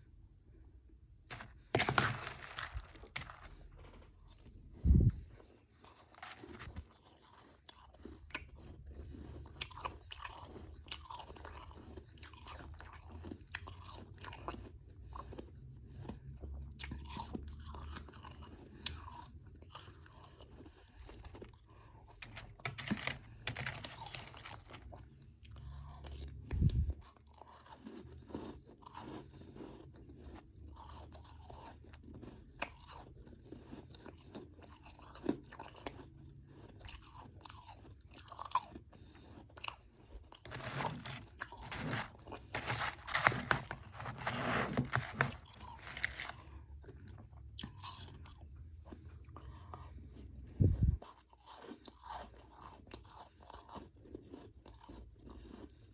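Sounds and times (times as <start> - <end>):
person crunching ice: 1.3 - 3.7, 6.1 - 6.8, 22.2 - 25.0, 40.4 - 46.6.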